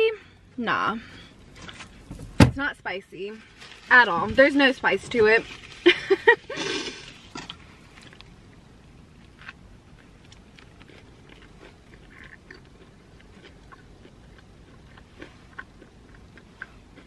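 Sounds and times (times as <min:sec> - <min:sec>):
faint crunches and mouth clicks: 0:06.6 - 0:08.6, 0:09.2 - 0:17.0
person biting and chewing: 0:09.2 - 0:17.0.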